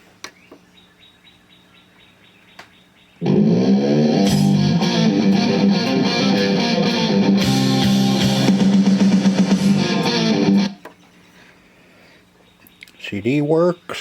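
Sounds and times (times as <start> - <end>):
music from boombox speakers: 3.2 - 10.8.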